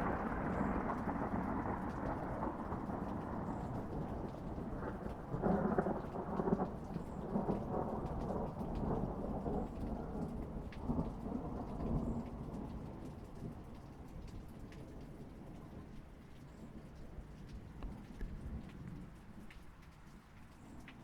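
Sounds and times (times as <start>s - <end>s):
rolling thunder rumble: 0.0s - 16.0s
faint raindrop ticks: 0.0s - 21.0s
rain falling: 0.0s - 21.0s.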